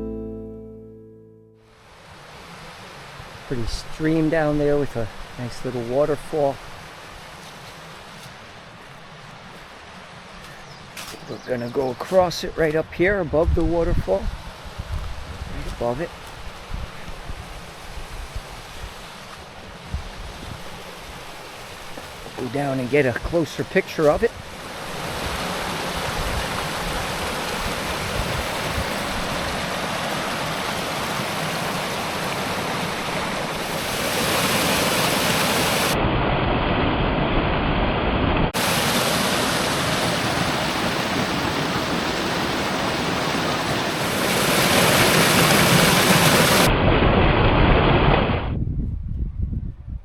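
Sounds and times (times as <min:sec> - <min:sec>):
waterfall rushing and splashing: 0:14.4 - 0:36.0, 0:38.6 - 0:46.8.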